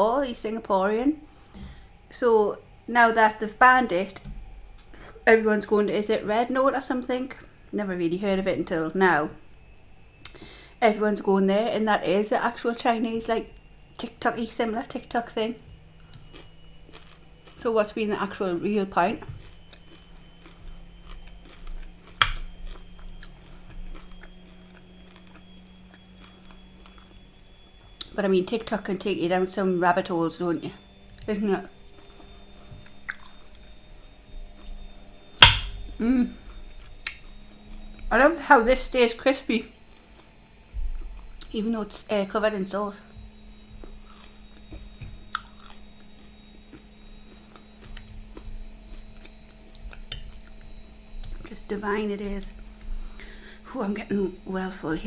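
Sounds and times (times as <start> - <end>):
crispy food crunch: 11.8 - 55.0
person chewing: 16.0 - 18.4, 19.1 - 27.1, 33.1 - 33.6, 43.8 - 44.7, 45.3 - 51.5.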